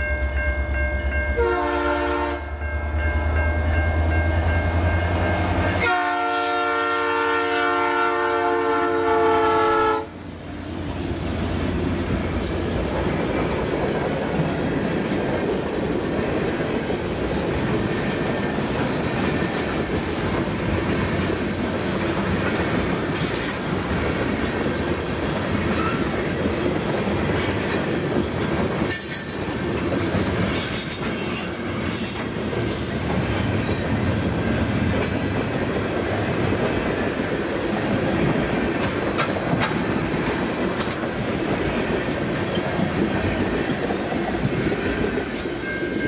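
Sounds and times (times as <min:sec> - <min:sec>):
train wheels clattering on rail: 0:10.7 - 0:46.0.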